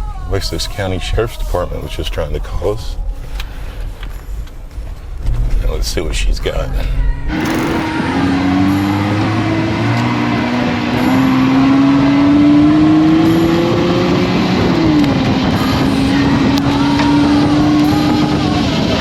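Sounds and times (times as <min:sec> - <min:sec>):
engine accelerating: 0:06.8 - 0:19.0.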